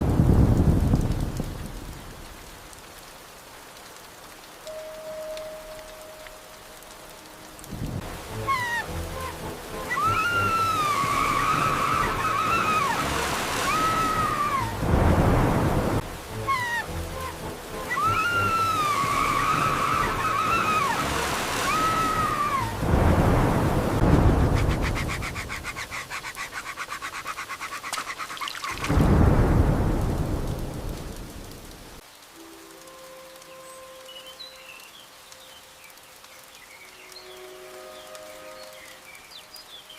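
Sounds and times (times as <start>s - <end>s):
low thunder rumble: 0.0s - 2.2s, 13.7s - 16.0s, 21.7s - 25.6s, 28.8s - 32.0s
rain: 0.0s - 39.9s
rushing floodwater: 0.0s - 39.9s
small animal whining cries: 8.4s - 13.0s, 16.4s - 17.3s, 17.9s - 21.0s.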